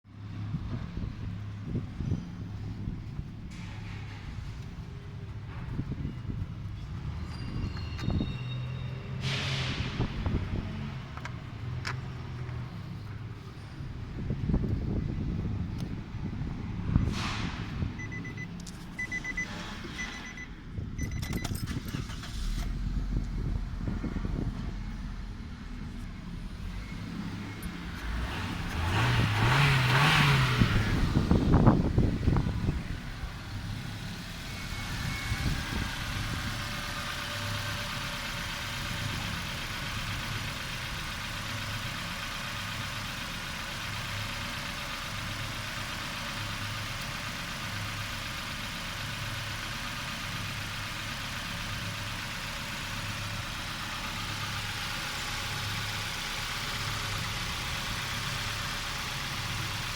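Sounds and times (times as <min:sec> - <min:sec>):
car engine revving and idling: 0:21.7 - 0:59.9.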